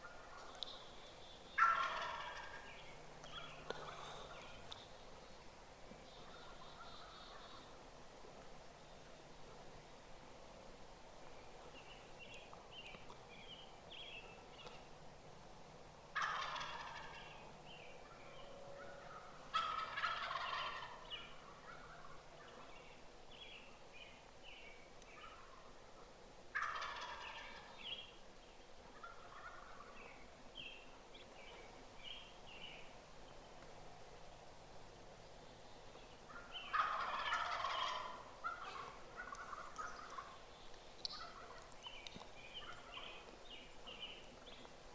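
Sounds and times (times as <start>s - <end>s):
turkey gobbling: 1.6s - 4.8s, 16.1s - 17.4s, 18.0s - 22.6s, 26.5s - 27.8s, 28.9s - 30.0s, 36.3s - 43.2s.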